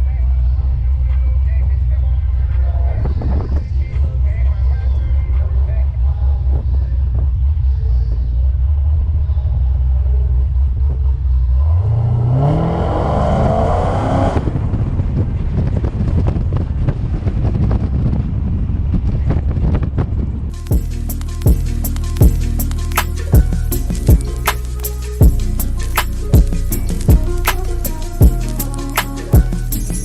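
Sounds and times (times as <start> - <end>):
car engine revving: 5.2 - 15.1
car accelerating away: 6.0 - 15.0.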